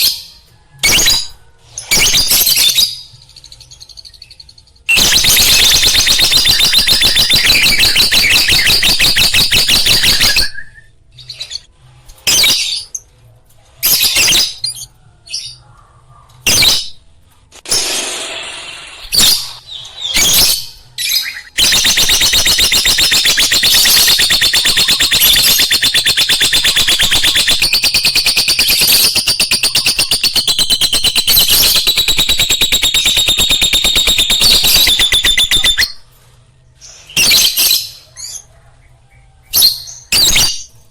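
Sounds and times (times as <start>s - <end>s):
lovebird chattering: 21.6s - 36.0s.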